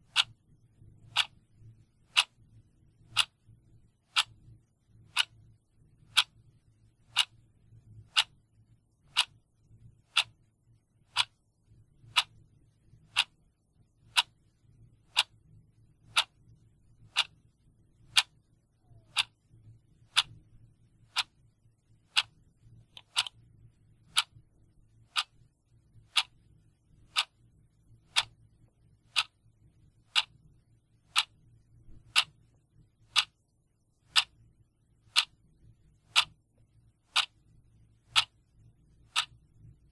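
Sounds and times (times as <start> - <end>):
clock ticking: 0.0 - 9.4, 10.0 - 10.5, 11.1 - 33.5, 34.1 - 39.8
faint low hum: 0.0 - 39.9.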